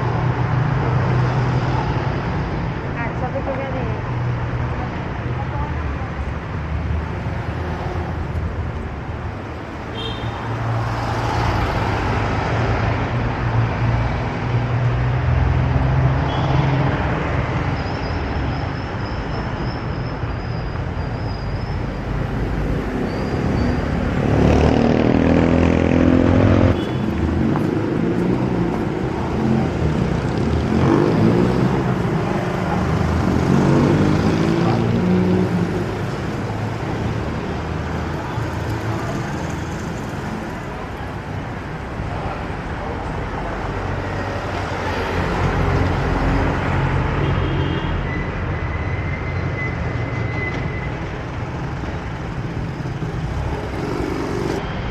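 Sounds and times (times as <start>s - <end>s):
road noise hum: 0.0s - 54.9s
vehicles passing: 0.0s - 54.9s
loud engine passing: 22.9s - 36.9s, 53.1s - 54.7s.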